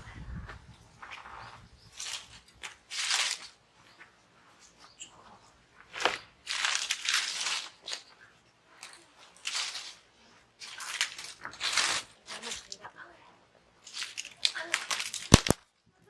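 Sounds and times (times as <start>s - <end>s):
crunching and rustling: 15.3s - 15.6s
sharp crack: 15.3s - 15.6s.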